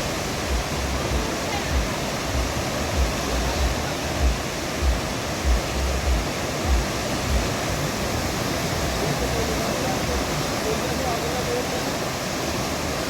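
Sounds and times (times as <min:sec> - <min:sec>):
dull low thumps: 0:00.0 - 0:07.6
river water rushing: 0:00.0 - 0:13.0.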